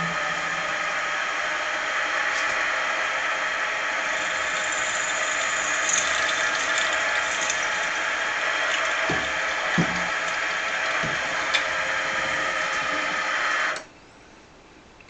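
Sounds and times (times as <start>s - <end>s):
drill bit cutting brass: 0.0s - 11.2s.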